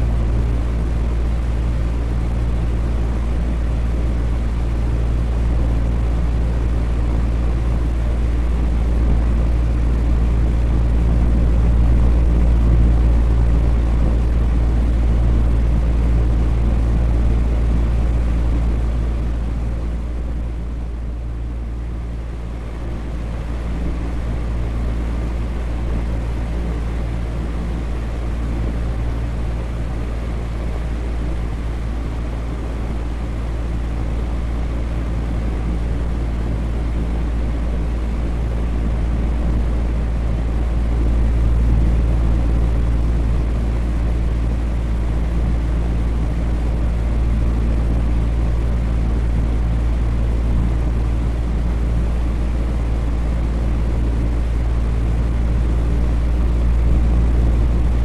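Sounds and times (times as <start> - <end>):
electric fan running: 0.0 - 58.0.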